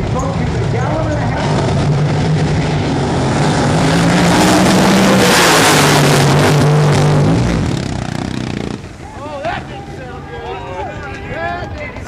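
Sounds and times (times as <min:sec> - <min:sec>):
loud boat engine running: 0:00.0 - 0:09.0
rush of noise: 0:00.0 - 0:10.7.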